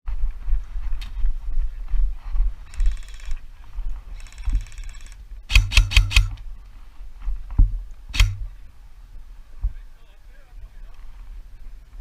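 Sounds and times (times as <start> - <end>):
airsoft gun shots: 5.5 - 6.4, 8.1 - 8.6.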